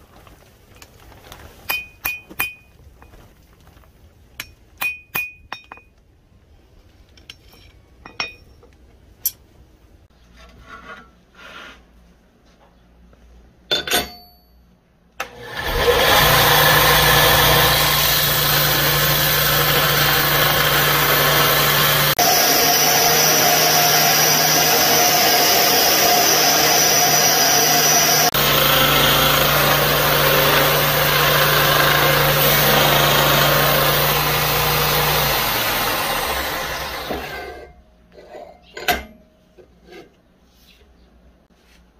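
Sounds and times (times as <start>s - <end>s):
metal clinks on anvil: 7.2s - 9.4s, 13.7s - 14.8s
belt grinder grinding: 15.2s - 37.6s.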